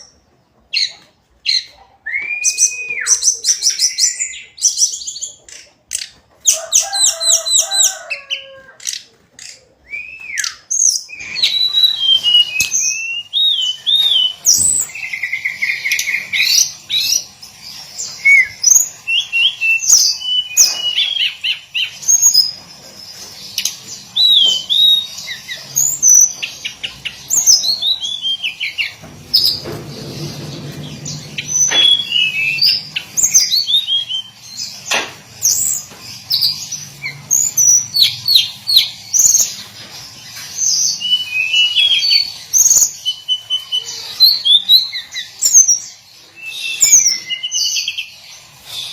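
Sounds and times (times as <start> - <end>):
bird singing whistled notes: 9.9 - 17.2, 18.2 - 22.5, 30.7 - 34.4, 40.9 - 45.7, 46.4 - 48.1.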